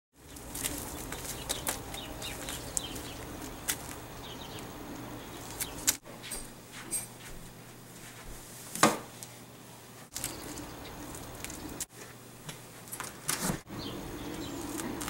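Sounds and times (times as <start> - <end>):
birds chirping: 0.2 - 6.0, 10.1 - 11.9, 13.7 - 15.0
steady low hum: 0.2 - 15.0.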